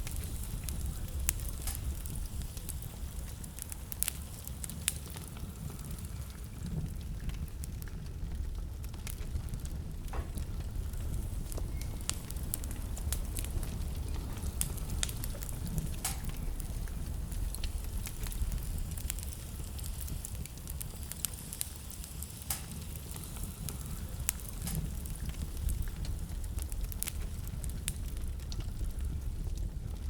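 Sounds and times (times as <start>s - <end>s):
low rumble of fire: 0.0s - 30.0s
wood fire crackling and popping: 0.0s - 30.0s.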